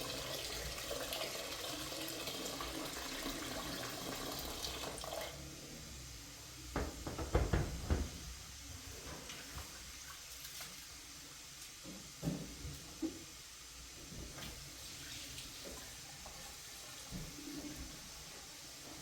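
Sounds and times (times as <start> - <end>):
faint running water: 0.0 - 19.0
short knocks: 6.8 - 8.2.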